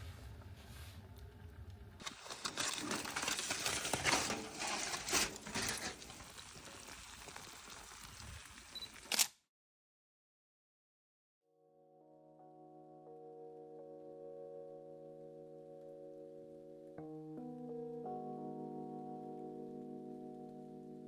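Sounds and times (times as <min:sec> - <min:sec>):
rustling crackling noise: 0:00.0 - 0:09.2.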